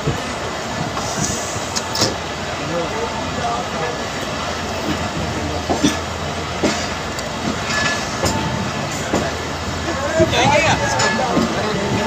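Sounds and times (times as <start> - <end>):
train rumbling on rails: 0.0 - 12.0
wheels clacking: 4.7 - 12.0.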